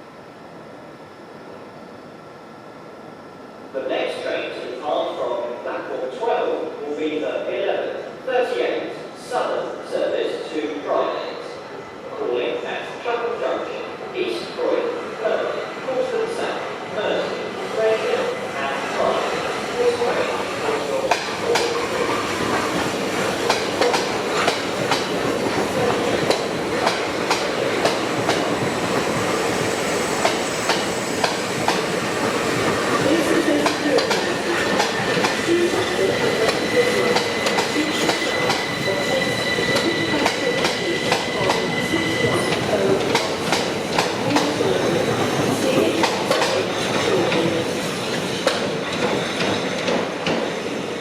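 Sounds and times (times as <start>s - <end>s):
train rumble: 15.3s - 50.5s
train wheels clicking over rail joints: 21.0s - 38.8s, 39.6s - 50.6s.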